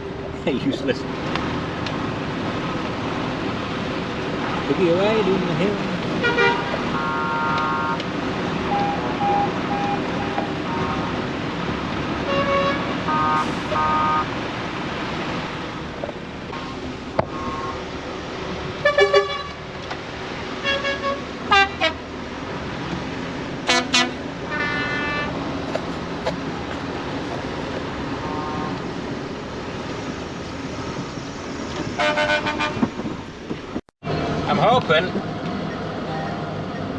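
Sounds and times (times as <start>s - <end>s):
lorry engine running: 0.0s - 36.9s
road noise: 0.0s - 36.9s
truck horns tooting: 6.1s - 11.3s, 12.2s - 14.4s, 16.5s - 17.9s, 18.8s - 19.6s, 20.5s - 22.1s, 23.6s - 25.6s, 31.9s - 33.1s.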